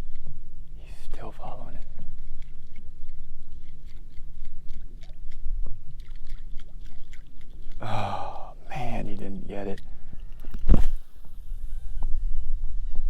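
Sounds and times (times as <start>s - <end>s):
steady low rumble: 0.0s - 6.6s
water lapping against a boat hull: 0.0s - 12.3s.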